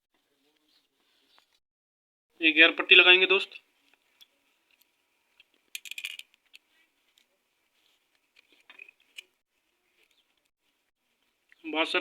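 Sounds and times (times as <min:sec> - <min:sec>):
metal parts clinking: 0:05.7 - 0:06.4.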